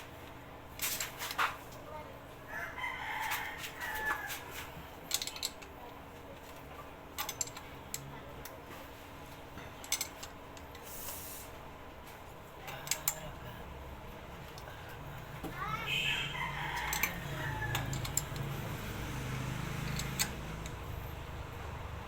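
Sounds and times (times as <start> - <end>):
metal tools clinking: 5.1 - 5.7, 7.1 - 8.6, 9.5 - 10.9, 16.8 - 21.1.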